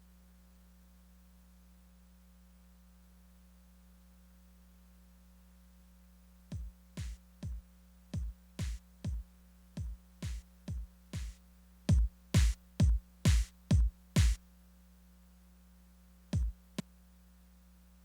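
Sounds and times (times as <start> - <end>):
drum machine kick hits: 6.5 - 7.6, 8.2 - 14.4, 16.4 - 16.6.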